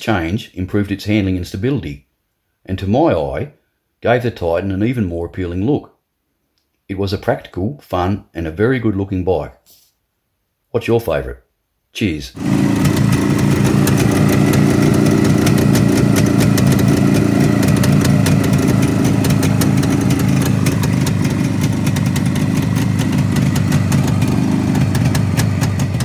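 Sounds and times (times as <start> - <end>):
fast irregular ticking: 12.4 - 26.0
motorcycle engine idling: 12.4 - 26.0.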